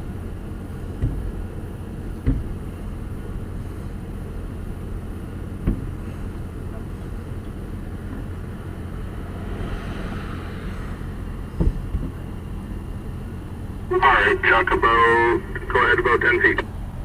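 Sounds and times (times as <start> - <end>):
engine idling: 0.0 - 17.0
heavy thud: 2.2 - 2.6, 5.6 - 6.0, 9.3 - 12.3.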